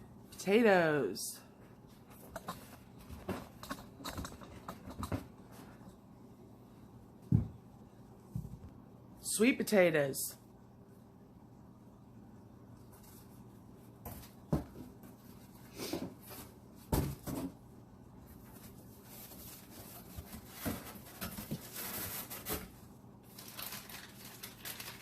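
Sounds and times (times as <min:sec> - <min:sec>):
packaging crinkling: 0:20.5 - 0:25.0.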